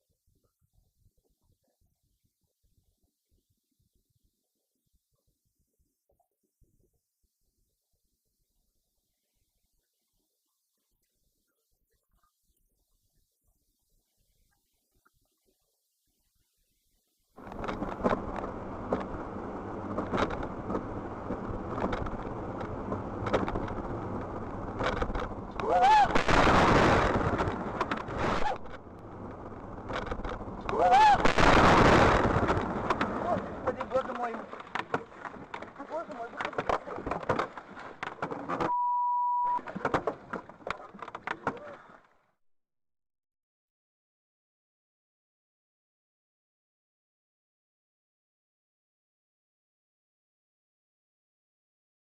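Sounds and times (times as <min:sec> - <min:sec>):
car road and engine rumble: 0:17.4 - 0:25.8
censor bleep: 0:38.7 - 0:39.6.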